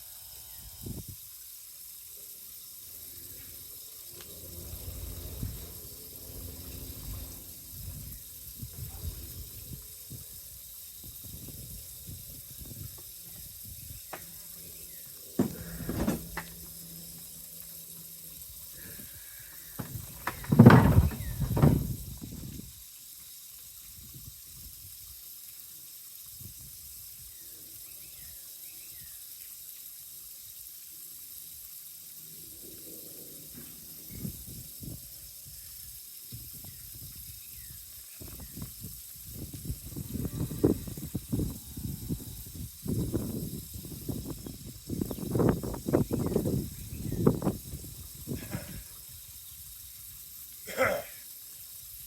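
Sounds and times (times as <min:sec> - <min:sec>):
wind buffeting microphone: 0:04.7 - 0:14.3, 0:19.8 - 0:22.7, 0:36.3 - 0:48.9.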